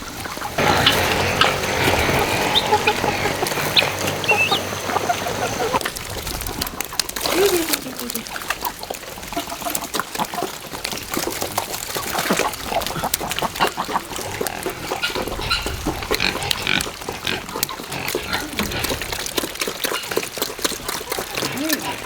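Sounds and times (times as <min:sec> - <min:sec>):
farm animals calling: 0:00.0 - 0:05.9, 0:12.8 - 0:22.0.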